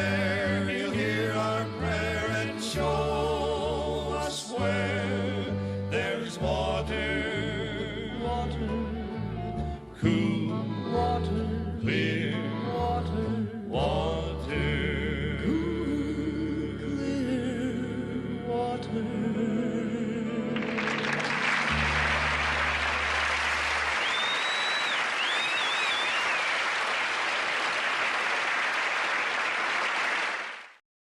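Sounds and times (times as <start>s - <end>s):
vocal harmony group with band: 0.0s - 21.0s
crowd whistling: 20.6s - 30.7s
audience applause: 20.6s - 30.8s.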